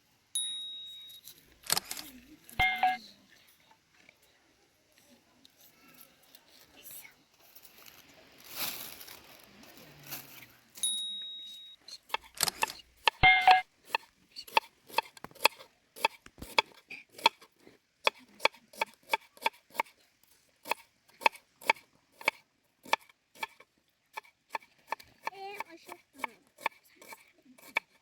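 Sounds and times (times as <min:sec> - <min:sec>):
knife chopping on wooden board: 0:12.1 - 0:13.2, 0:13.9 - 0:17.5, 0:18.1 - 0:19.9, 0:20.7 - 0:23.6, 0:24.2 - 0:28.0.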